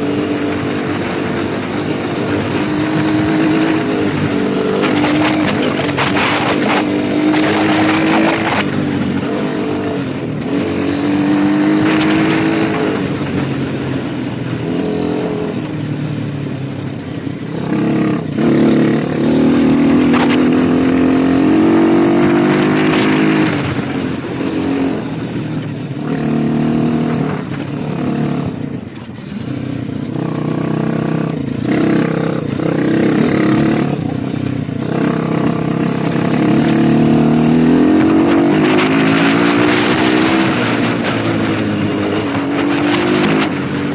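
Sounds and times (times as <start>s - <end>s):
small motorcycle engines revving: 0.0s - 43.9s.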